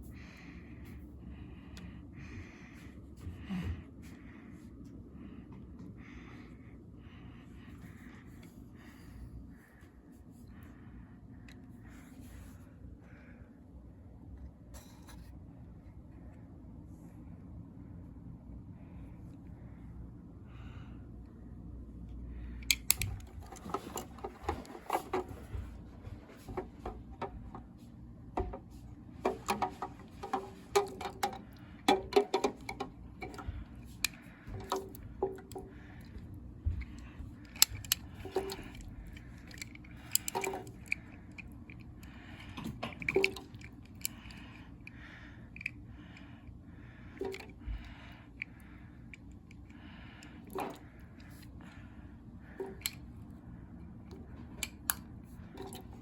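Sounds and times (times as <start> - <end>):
faint low hum: 0.0 - 56.0
small objects clicking and knocking: 29.2 - 36.1, 36.8 - 41.9.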